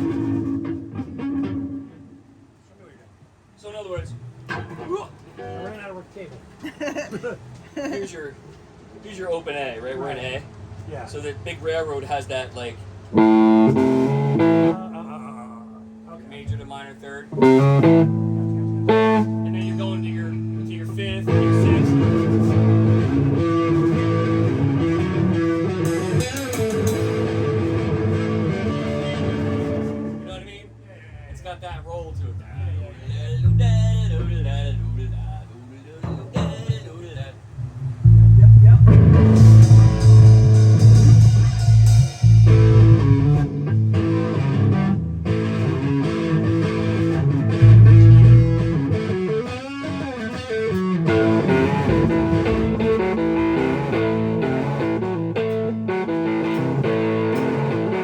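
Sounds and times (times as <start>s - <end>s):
electric guitar blues-rock riff: 0.0s - 2.4s, 13.0s - 30.4s, 38.1s - 58.0s.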